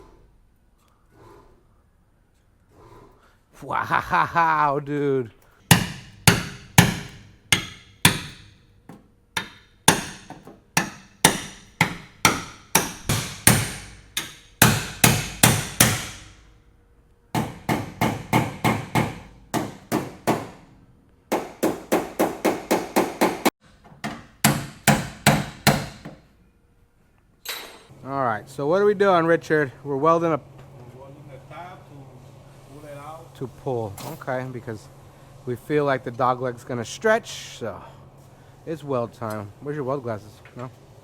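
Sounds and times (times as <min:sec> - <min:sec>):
hammer striking sheet metal: 0:05.7 - 0:08.6, 0:09.4 - 0:16.4.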